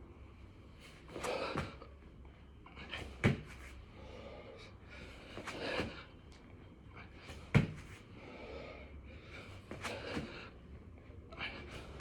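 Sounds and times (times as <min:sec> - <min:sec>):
person breathing heavily: 0:03.8 - 0:06.1, 0:07.0 - 0:10.6.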